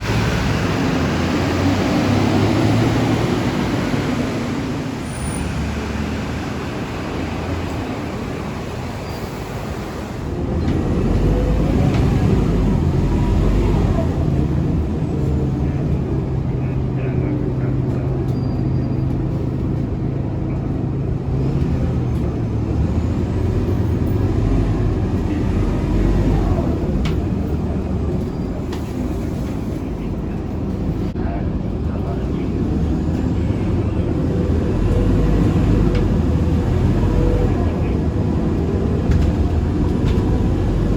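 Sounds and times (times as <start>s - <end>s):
bus diesel engine running: 0.0s - 40.9s
road and cabin noise: 0.0s - 40.9s.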